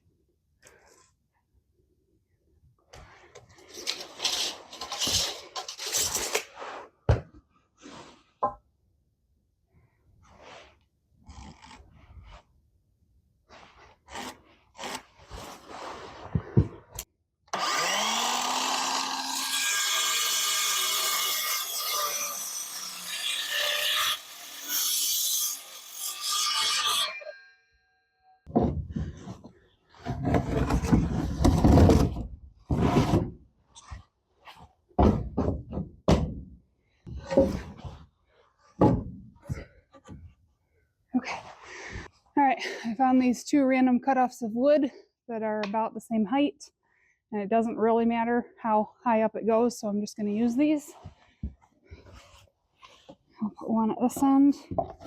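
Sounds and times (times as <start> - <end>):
power saw cutting wood: 17.5 - 27.3
wood scraping and knocking: 28.5 - 34.0, 35.0 - 36.5, 37.1 - 38.0, 38.7 - 40.4, 54.1 - 55.0.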